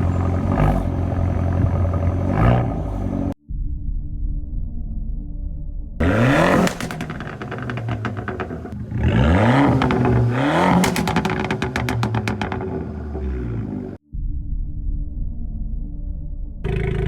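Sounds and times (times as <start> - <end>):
exhaust pops and crackles: 0.0 - 3.3, 6.0 - 14.0
car engine revving: 0.0 - 3.4, 6.0 - 14.0.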